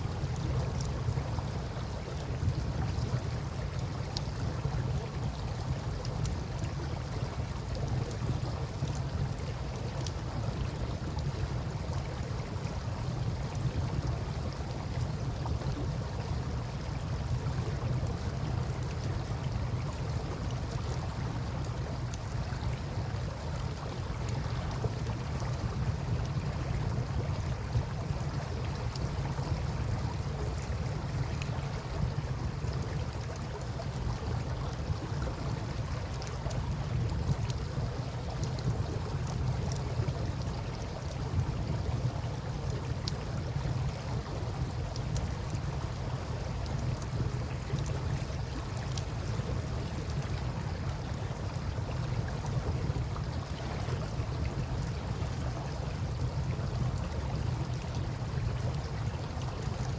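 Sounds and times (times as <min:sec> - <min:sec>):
campfire crackling and popping: 0:36.0 - 0:53.2.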